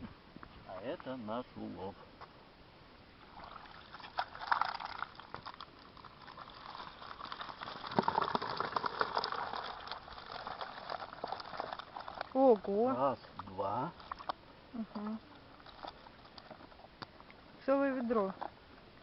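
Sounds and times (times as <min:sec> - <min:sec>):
water splashing around fish: 0:03.2 - 0:17.5.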